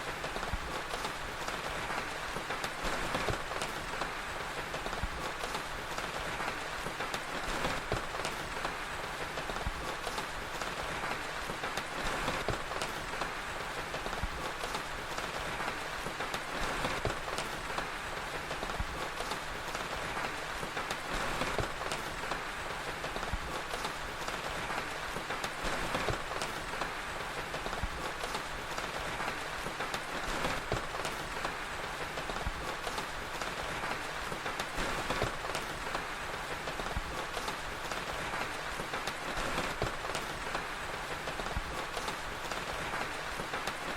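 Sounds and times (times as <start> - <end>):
rain hiss: 0.0 - 43.9
wood fire crackling: 0.0 - 43.9.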